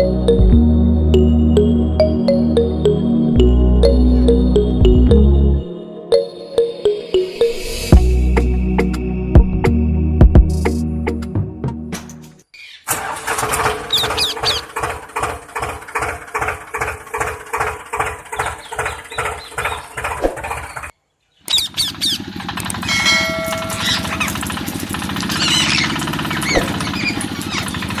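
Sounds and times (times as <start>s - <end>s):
small machine humming and pulsing: 21.6s - 28.0s
high chirps: 23.0s - 24.4s.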